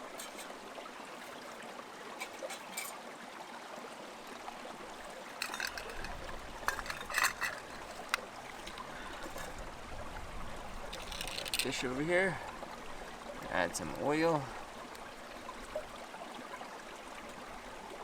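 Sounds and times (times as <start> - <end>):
metal cookware clinking: 0.0 - 0.6, 2.2 - 3.0, 5.2 - 9.6, 11.0 - 11.7
stream trickling: 0.0 - 18.0.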